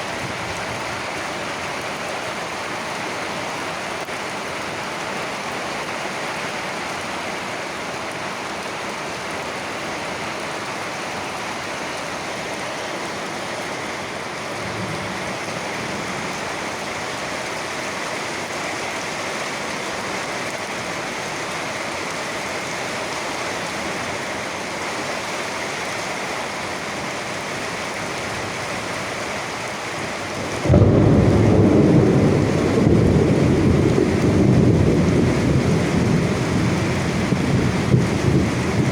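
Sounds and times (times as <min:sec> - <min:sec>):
steady rain: 0:00.0 - 0:38.9
loud thunderclap rumbling: 0:30.4 - 0:38.9.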